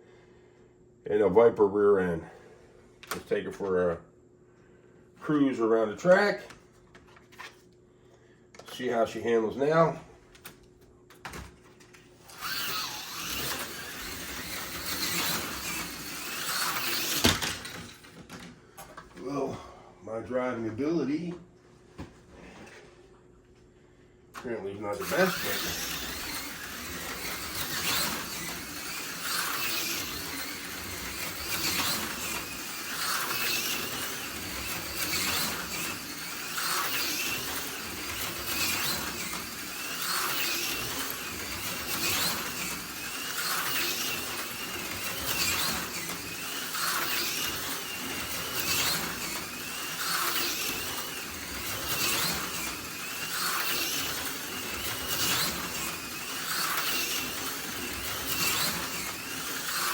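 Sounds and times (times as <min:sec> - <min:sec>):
slot car motor whining: 0:12.2 - 0:18.5, 0:24.4 - 0:59.9.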